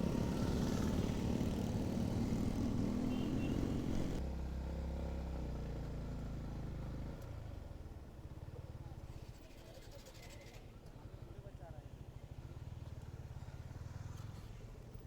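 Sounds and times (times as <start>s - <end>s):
motorcycle engine running: 0.0s - 4.2s.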